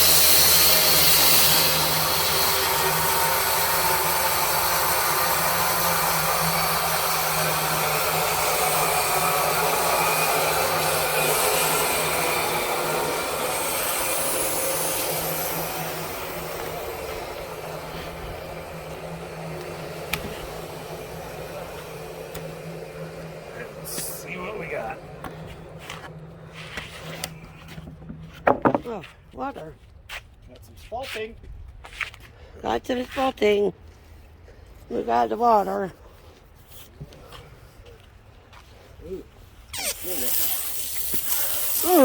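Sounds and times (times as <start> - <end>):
saw blade cutting log: 0.0 - 29.1, 39.8 - 42.0
sawmill engine running: 0.0 - 29.6.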